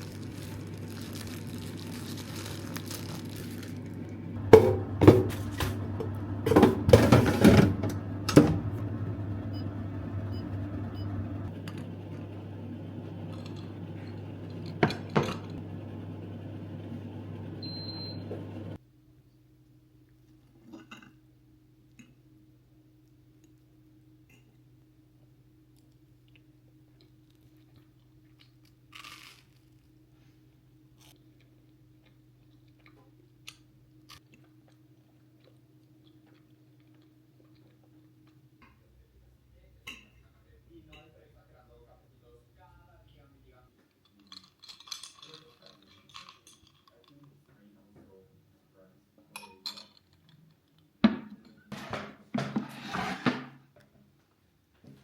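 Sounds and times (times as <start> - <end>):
electric appliance humming: 0.0 - 18.8.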